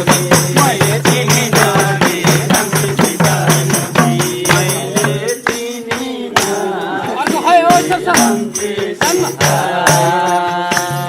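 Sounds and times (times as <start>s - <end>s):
hand percussion strikes: 0.0s - 11.0s
jingling tambourine: 0.0s - 11.0s
voices: 4.0s - 10.3s.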